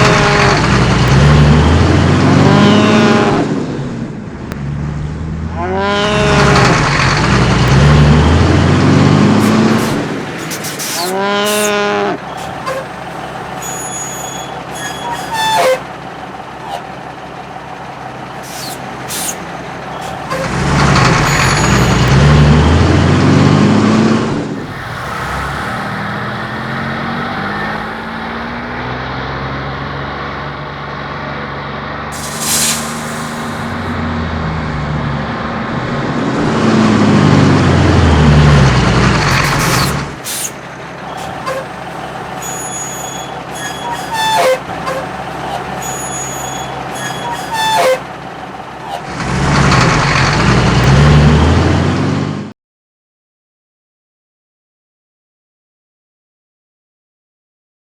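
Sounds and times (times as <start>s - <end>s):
cartoon truck engine revving: 0.0s - 52.5s
short hiss: 9.4s - 11.7s, 18.4s - 20.6s, 32.2s - 33.9s, 39.4s - 40.6s.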